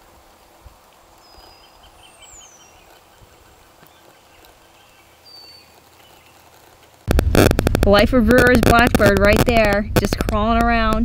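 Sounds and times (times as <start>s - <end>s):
faint birdsong: 1.0s - 7.0s.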